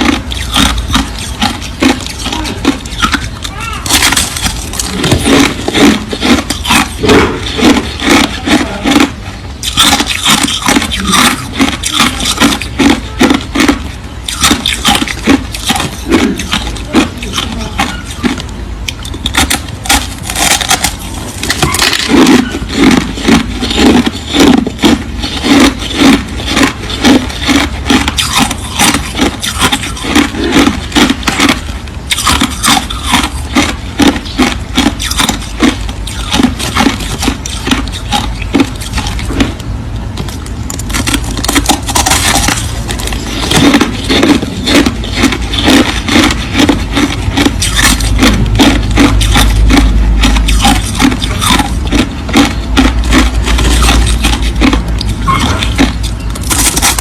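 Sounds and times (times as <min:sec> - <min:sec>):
crushed ice crunching: 0:00.0 - 0:18.4, 0:19.3 - 0:39.5, 0:40.3 - 0:57.0.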